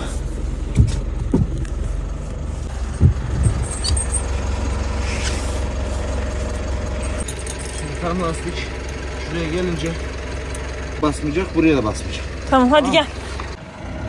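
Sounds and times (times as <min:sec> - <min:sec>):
car engine idling: 0:00.0 - 0:14.0
dull thumps: 0:00.7 - 0:01.8.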